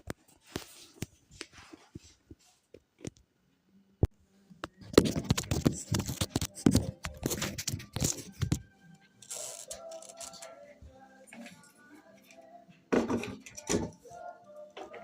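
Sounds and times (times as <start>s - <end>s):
scraping and tearing packaging: 9.2s - 10.4s.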